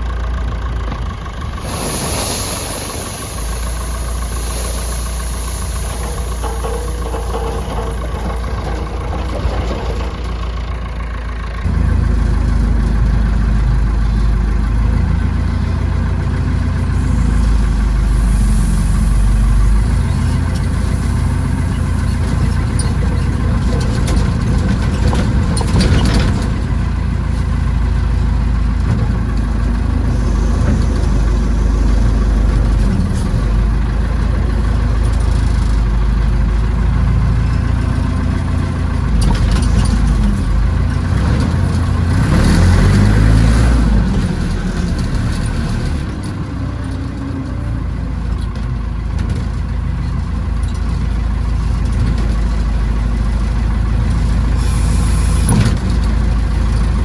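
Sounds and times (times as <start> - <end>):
tractor engine running: 0.0 - 57.0
brief rattle: 1.6 - 11.2.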